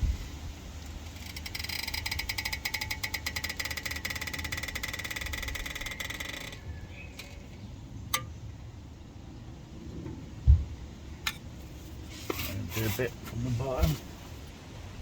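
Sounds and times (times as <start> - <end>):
rapid metallic chattering: 0.9 - 8.4.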